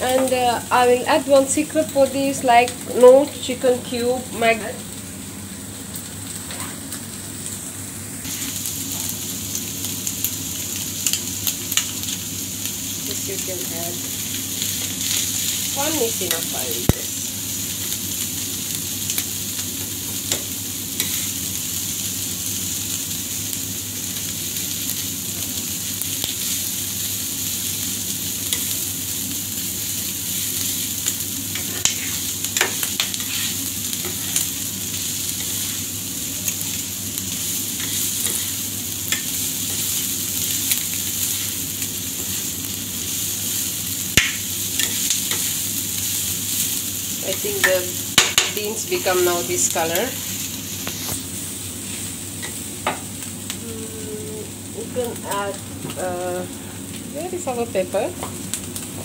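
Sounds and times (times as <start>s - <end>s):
vegetables sizzling on griddle: 0.0s - 59.0s
metal spatula scraping: 31.6s - 34.4s.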